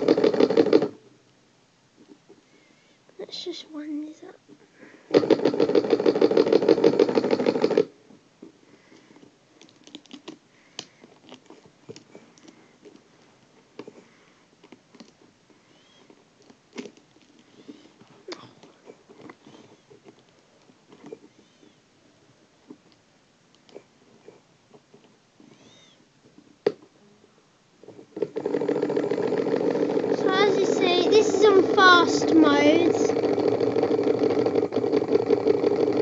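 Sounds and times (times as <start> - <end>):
small electric motor buzzing: 28.3 - 36.0.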